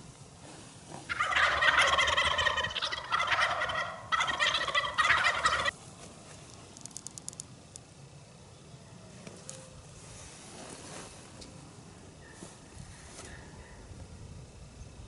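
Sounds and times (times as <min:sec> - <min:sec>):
turkey gobbling: 0:01.1 - 0:05.8.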